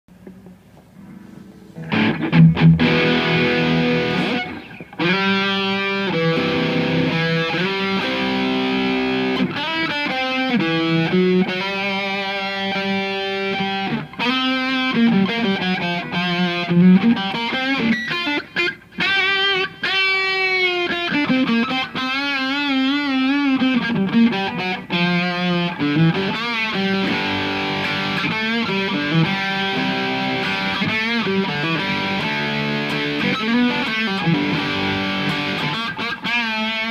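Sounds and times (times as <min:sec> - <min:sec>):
electric guitar lead lines: 0:00.1 - 0:36.9.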